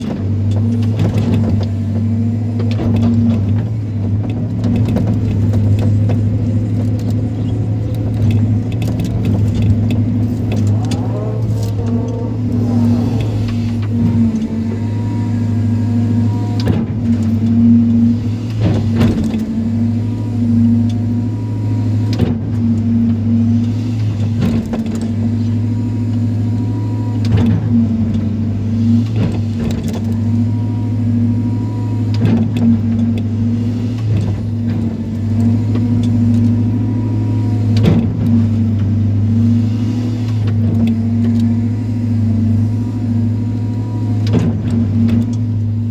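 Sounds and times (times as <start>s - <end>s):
excavator diesel engine: 0.0s - 45.9s.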